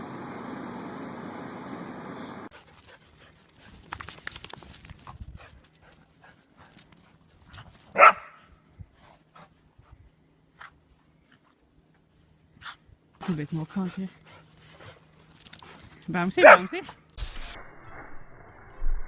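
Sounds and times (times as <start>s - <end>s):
dog barking: 8.0s - 8.4s, 16.4s - 16.8s.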